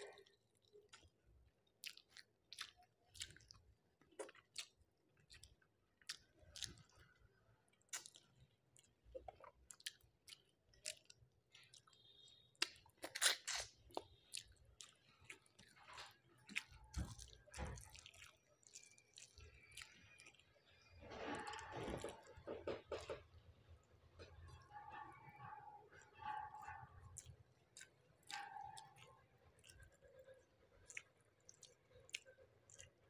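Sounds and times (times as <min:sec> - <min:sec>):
chewing: 0:00.0 - 0:33.0
crisp crunching bites: 0:12.6 - 0:14.1.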